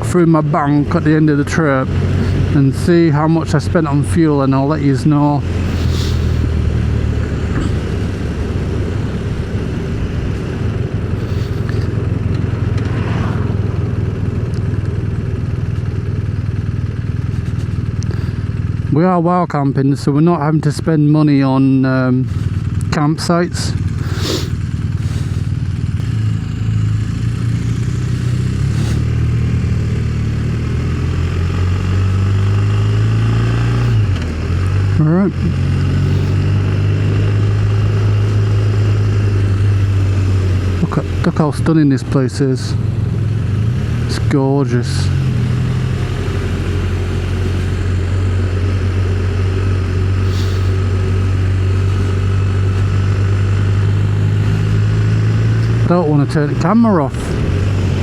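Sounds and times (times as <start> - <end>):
motorcycle engine running: 0.0 - 58.0
rushing wind noise: 5.4 - 15.7, 57.0 - 58.0.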